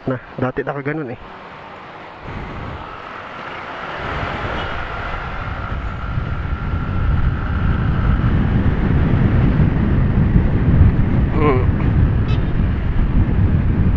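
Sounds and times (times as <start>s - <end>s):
steady high whine: 0.0s - 13.9s
scooter pulling away: 1.2s - 10.8s
wind rumble on microphone: 2.0s - 13.9s.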